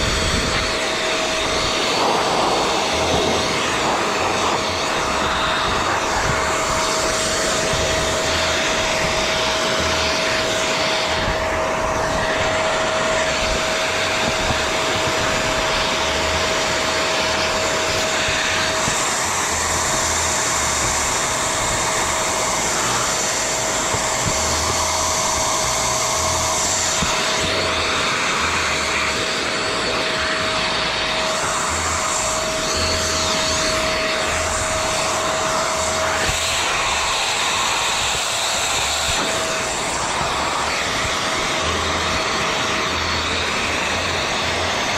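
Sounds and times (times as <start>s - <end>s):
blower motor whine: 0.0s - 44.9s.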